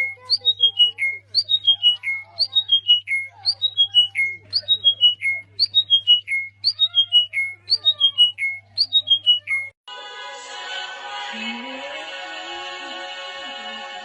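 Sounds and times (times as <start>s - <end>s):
bird whistling song: 0.0s - 9.8s.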